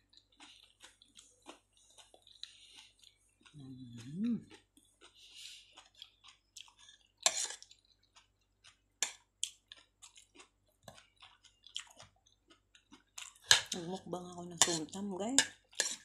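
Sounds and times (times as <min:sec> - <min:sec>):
close-up chewing: 0:00.0 - 0:13.9
cutlery clicking and scraping on plate: 0:07.2 - 0:07.7, 0:13.4 - 0:13.7, 0:14.6 - 0:16.0.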